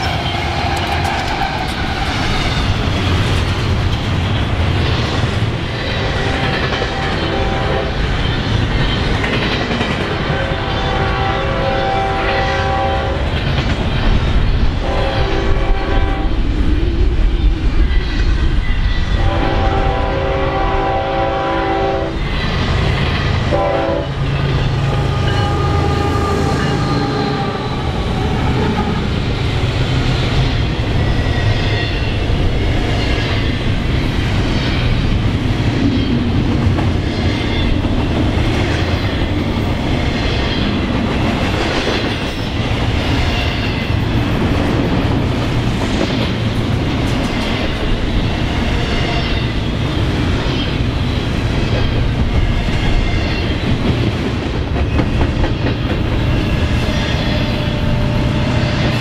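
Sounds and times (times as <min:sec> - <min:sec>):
rail joint clacking: 0:00.0 - 0:16.2, 0:22.2 - 0:59.0
freight train wheels rumbling on rails: 0:00.0 - 0:59.0
train horn blast: 0:06.9 - 0:08.0, 0:10.3 - 0:13.3, 0:14.8 - 0:16.4, 0:19.2 - 0:22.2, 0:23.5 - 0:24.2, 0:24.8 - 0:29.1, 0:56.2 - 0:59.0.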